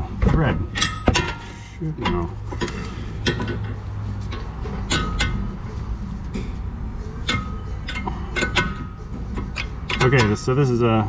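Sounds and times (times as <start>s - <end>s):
steady low hum: 0.0s - 11.0s
metal parts clinking: 0.7s - 5.5s.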